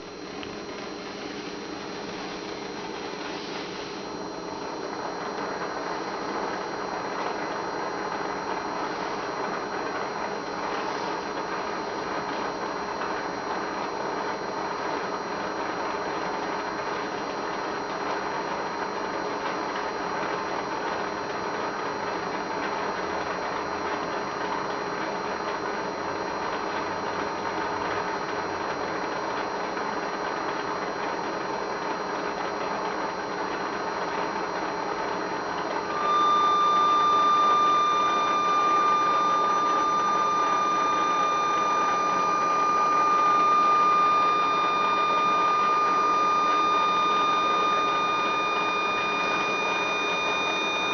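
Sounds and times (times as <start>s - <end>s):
steady hiss: 1.0s - 4.1s
engine singing high tone: 35.0s - 50.9s.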